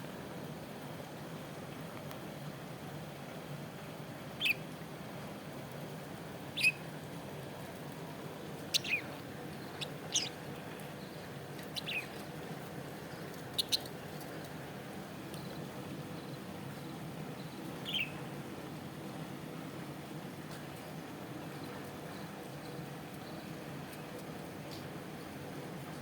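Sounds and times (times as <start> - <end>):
steady low hum: 2.3 - 25.8
parrot chirping: 6.6 - 6.8, 8.7 - 10.4, 11.7 - 12.2, 13.6 - 13.9.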